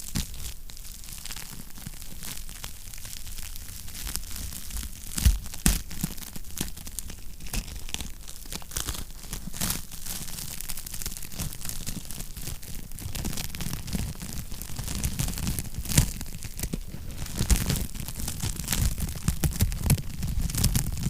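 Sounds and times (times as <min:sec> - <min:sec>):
wood fire crackling: 0:10.0 - 0:21.0.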